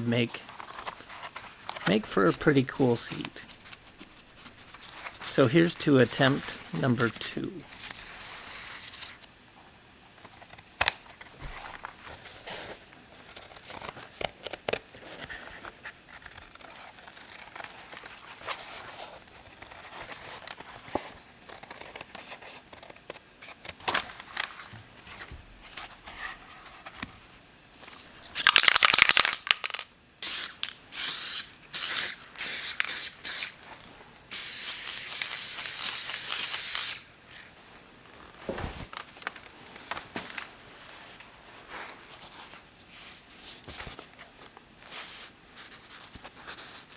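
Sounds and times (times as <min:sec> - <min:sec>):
aerosol spray can hissing: 0:30.2 - 0:33.6, 0:34.3 - 0:37.0.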